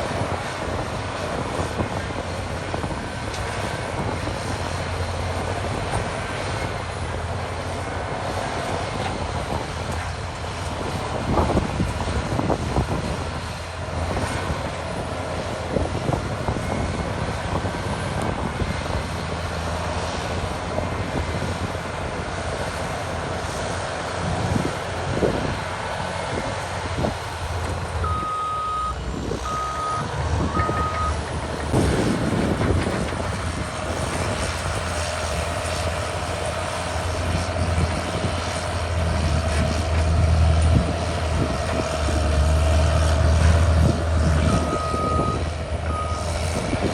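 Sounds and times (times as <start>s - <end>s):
bulldozer diesel engine running: 0.0s - 46.9s
reverse alarm beeps: 28.0s - 31.2s, 44.4s - 46.4s.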